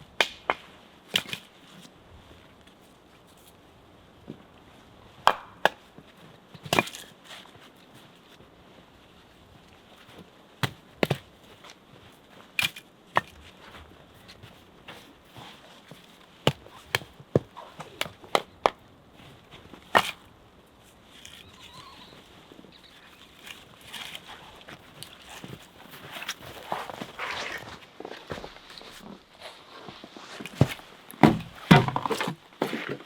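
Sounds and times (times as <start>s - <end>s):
hand tools knocking on wood: 30.6s - 32.3s.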